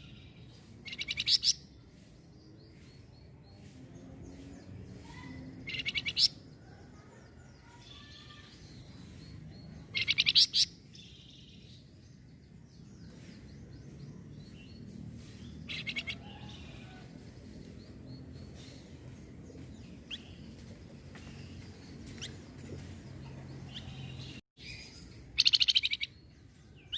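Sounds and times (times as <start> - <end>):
faint bird chirps: 5.0 - 11.8.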